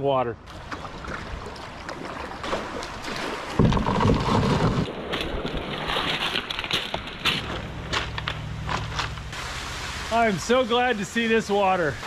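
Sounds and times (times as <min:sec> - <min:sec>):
water sloshing around kayak: 0:00.5 - 0:07.4.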